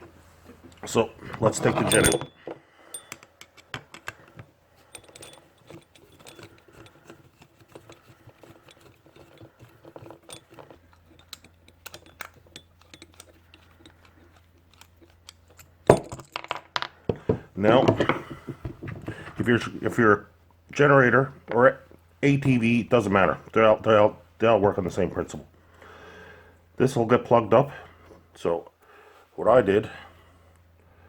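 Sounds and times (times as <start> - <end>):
metal clicks and scrapes of screwdriver: 2.9 - 15.8.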